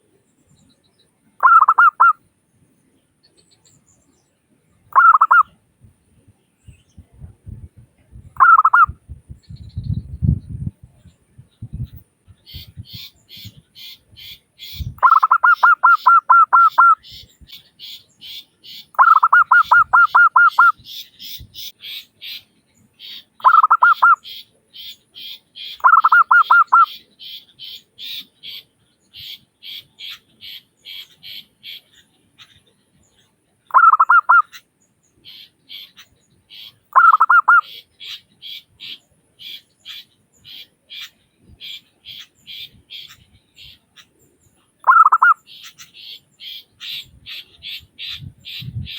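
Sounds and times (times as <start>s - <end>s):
soft high-pitched chirping: 0.4s - 2.2s, 4.9s - 5.5s, 6.6s - 34.7s, 35.3s - 48.9s
dove cooing: 1.4s - 2.2s, 5.0s - 5.4s, 8.4s - 8.9s, 15.0s - 17.0s, 19.0s - 20.8s, 23.4s - 24.2s, 25.8s - 26.9s, 33.7s - 34.5s, 37.0s - 37.8s, 44.9s - 45.4s.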